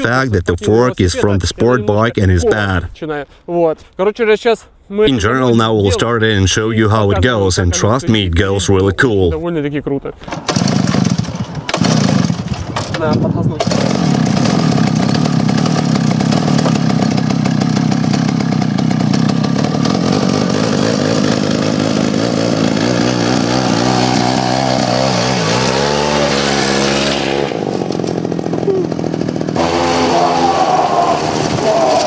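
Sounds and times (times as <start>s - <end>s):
two-stroke engine high revs: 10.3s - 32.0s.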